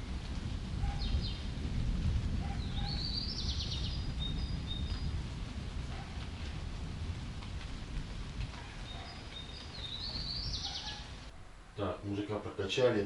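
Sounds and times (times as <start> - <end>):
steady low rumble: 0.0 - 12.1
small birds chirping: 0.8 - 1.6, 2.4 - 5.4, 8.5 - 11.5.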